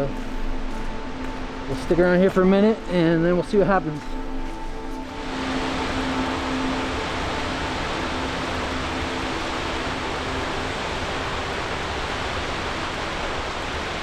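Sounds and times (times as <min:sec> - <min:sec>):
faint background music: 0:00.0 - 0:14.0
waterfall roaring: 0:05.2 - 0:14.0.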